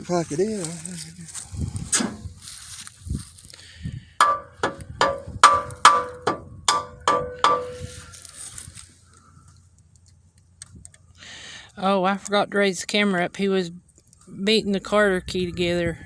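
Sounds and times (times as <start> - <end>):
hammer ringing on metal: 4.2 - 7.7.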